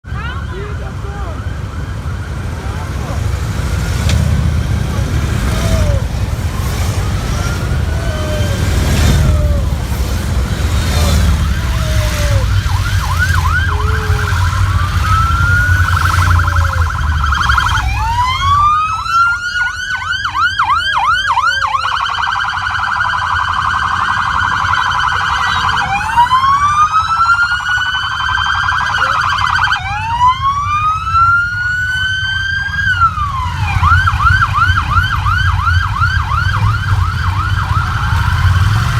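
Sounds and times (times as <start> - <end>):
heavy engine rumble: 0.0 - 22.2
electronic siren wailing and yelping: 4.7 - 38.9.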